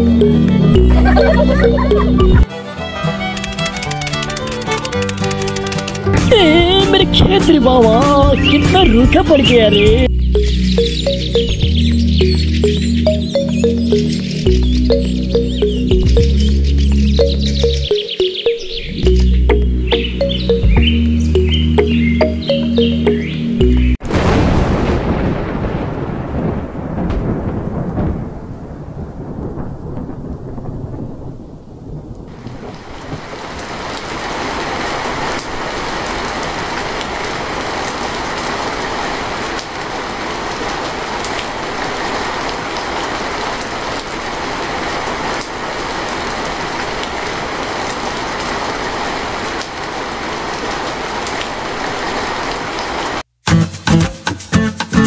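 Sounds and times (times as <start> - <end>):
rain falling on mud and puddles: 3.2 - 9.7, 24.0 - 53.3
thunder rumble: 24.0 - 52.6.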